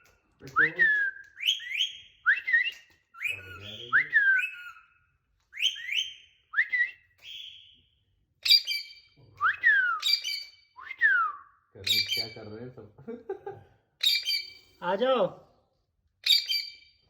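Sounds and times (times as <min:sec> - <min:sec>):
parrot whistling: 0:01.2 - 0:05.0, 0:05.6 - 0:07.8, 0:08.4 - 0:12.4, 0:14.0 - 0:14.8, 0:16.2 - 0:16.8.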